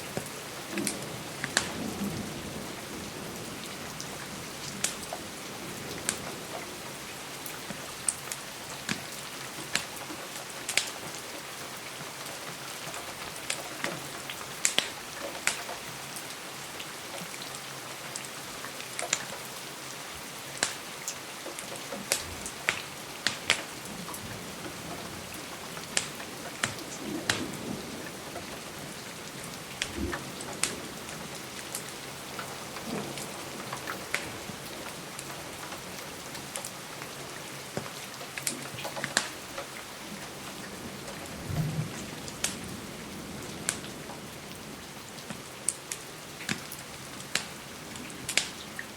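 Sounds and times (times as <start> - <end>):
steady rain: 0.0 - 48.9
wood fire crackling: 21.5 - 27.7, 29.6 - 37.1, 37.7 - 43.9, 45.2 - 48.8.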